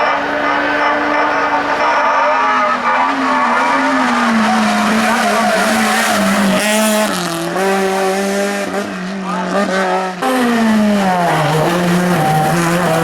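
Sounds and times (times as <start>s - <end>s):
tyre squeal: 0.0s - 7.2s
race car engine at high revs: 0.0s - 13.0s.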